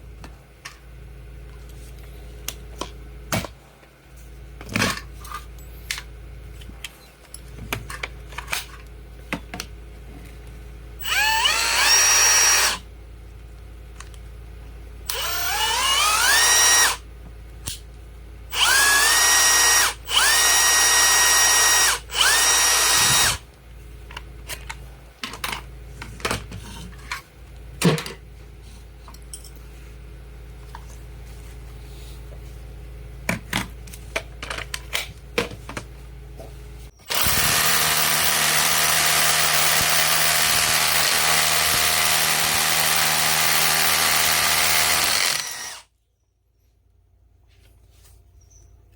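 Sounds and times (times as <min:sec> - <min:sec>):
rotary hammer motor whining: 0:11.0 - 0:12.8, 0:15.1 - 0:17.0, 0:18.5 - 0:23.4, 0:37.0 - 0:45.9.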